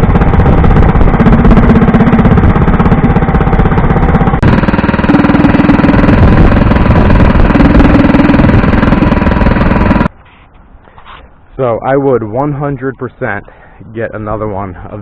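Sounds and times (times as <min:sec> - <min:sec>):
small engine running loud: 0:00.0 - 0:10.1.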